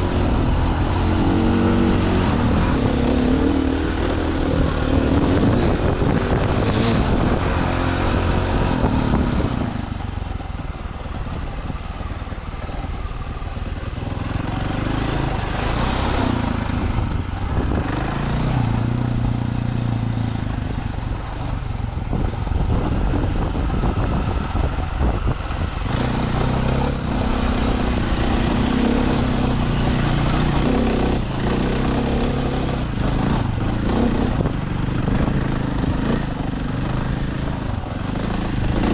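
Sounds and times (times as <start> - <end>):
dirt bike engine revving: 0.0 - 9.6, 14.0 - 20.0, 25.7 - 38.9.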